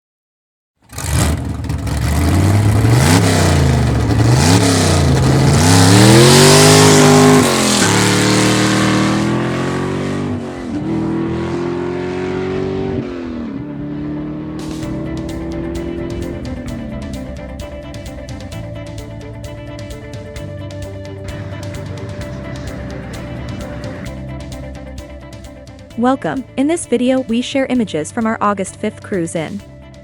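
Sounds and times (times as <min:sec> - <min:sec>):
car engine revving and accelerating: 0:00.9 - 0:25.8.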